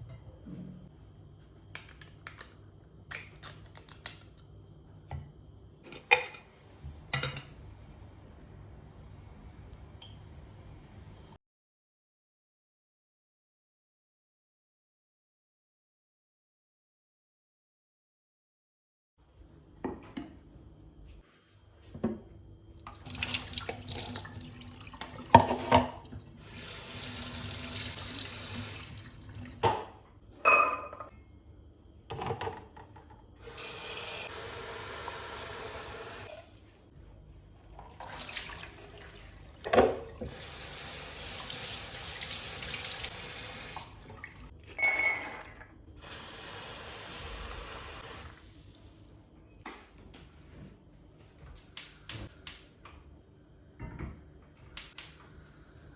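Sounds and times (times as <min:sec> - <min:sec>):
kitchenware clinking and knocking: 0:29.6 - 0:31.1.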